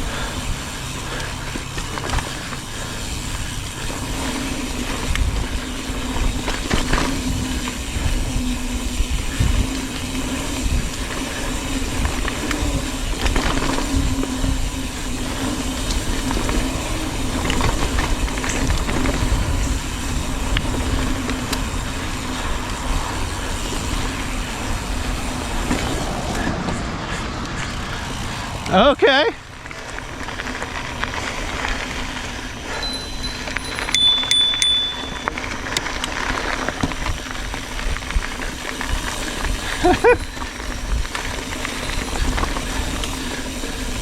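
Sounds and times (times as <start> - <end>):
wind buffeting microphone: 0.0 - 28.8
bike rattling and knocking: 0.0 - 44.0
bike tyres rumbling on trail: 0.0 - 44.0.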